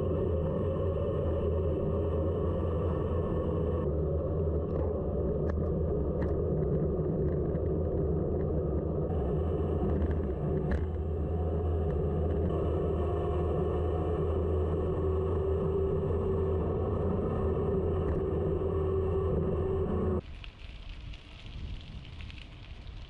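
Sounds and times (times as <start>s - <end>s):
bicycle tyre noise: 0.0s - 23.0s
wind rumble on microphone: 0.0s - 23.0s
faint bike clicks: 20.2s - 23.0s.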